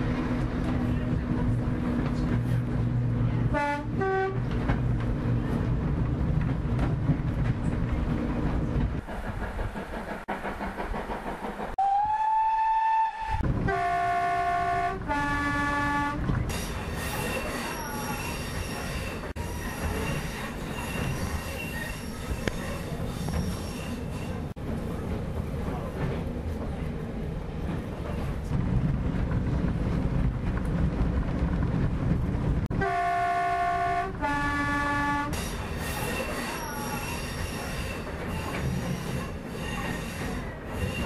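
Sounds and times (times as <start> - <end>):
train rumbling: 0.0 - 41.0
diesel train horn: 3.5 - 4.6, 11.8 - 16.3, 32.7 - 35.4
steam locomotive whistle: 11.8 - 16.2, 32.8 - 35.4
wheels squealing on rails: 16.4 - 24.6, 35.2 - 41.0.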